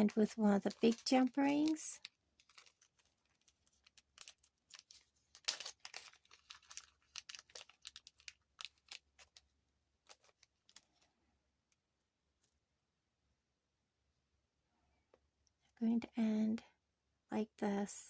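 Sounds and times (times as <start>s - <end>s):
beads clicking and rustling: 0.1s - 11.1s.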